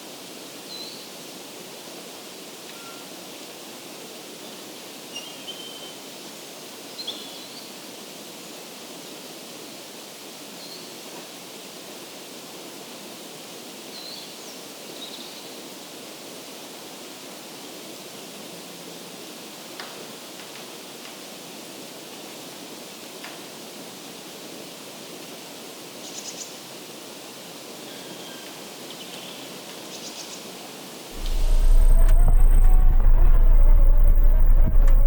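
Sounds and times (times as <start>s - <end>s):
rushing outdoor background noise: 31.2s - 35.0s.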